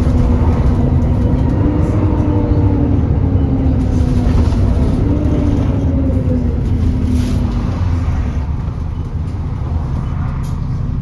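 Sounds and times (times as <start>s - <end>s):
diesel bus rumbling with whine: 0.0s - 11.0s.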